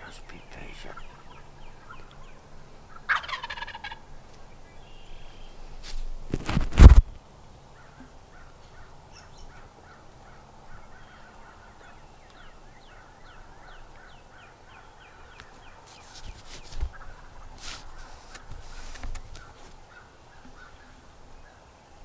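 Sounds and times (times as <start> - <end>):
faint turkey yelps: 2.9 - 4.0.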